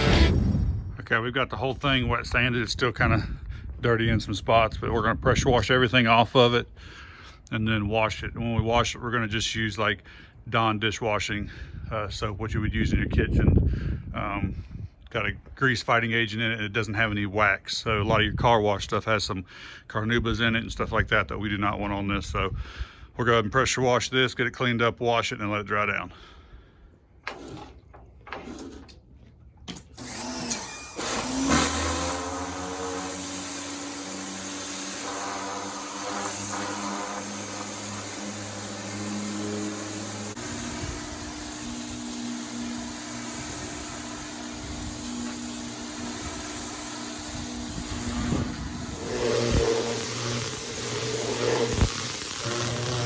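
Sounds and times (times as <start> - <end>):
pressure washer running: 0.0 - 0.3, 30.0 - 53.0.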